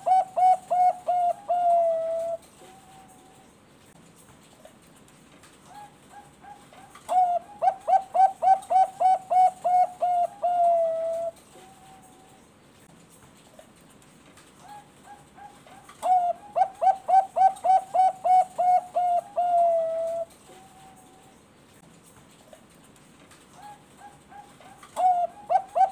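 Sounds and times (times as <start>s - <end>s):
dove cooing: 0.0s - 3.5s, 5.7s - 12.4s, 14.6s - 21.4s, 23.5s - 25.9s.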